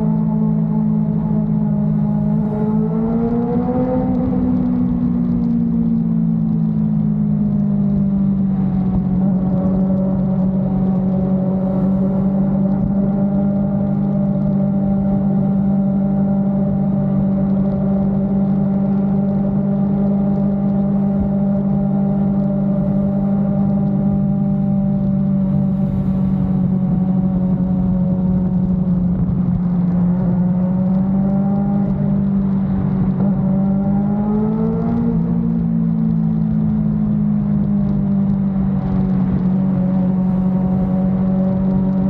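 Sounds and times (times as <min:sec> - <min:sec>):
motorcycle engine: 0:00.0 - 0:42.0.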